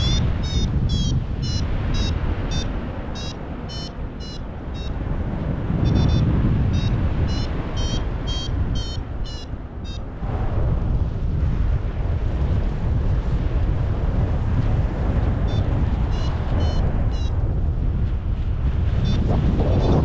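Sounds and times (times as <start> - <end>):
variometer short high beeps: 0.0 - 5.0, 5.8 - 10.0
wind noise on microphone: 0.0 - 20.0.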